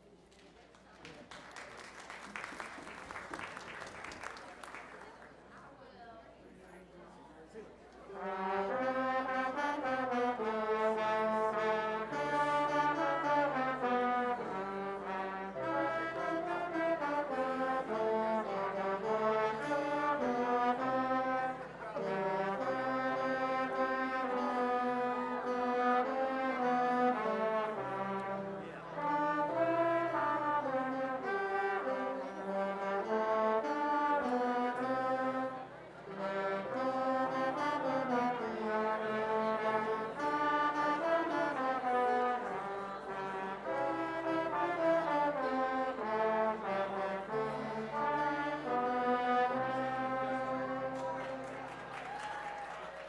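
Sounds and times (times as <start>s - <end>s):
slow brass-like church chords: 8.1s - 51.7s.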